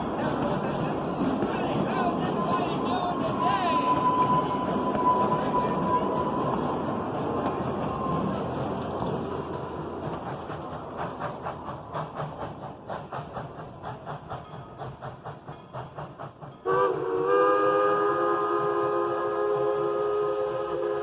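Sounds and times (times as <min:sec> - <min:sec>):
steam locomotive chuffing: 0:00.0 - 0:21.0
steam whistle chime: 0:02.3 - 0:06.9, 0:16.6 - 0:21.0.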